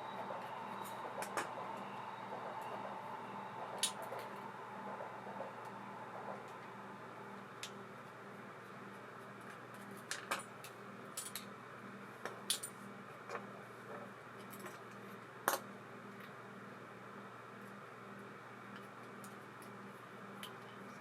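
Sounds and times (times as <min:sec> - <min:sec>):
faint low hum: 0:00.0 - 0:11.1.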